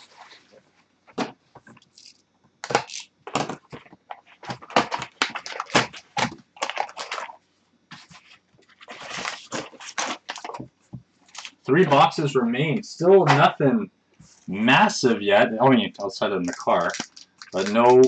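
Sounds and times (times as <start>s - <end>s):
card packs torn open crackling: 1.8s - 7.4s, 8.7s - 10.6s, 11.3s - 11.7s, 16.0s - 18.0s.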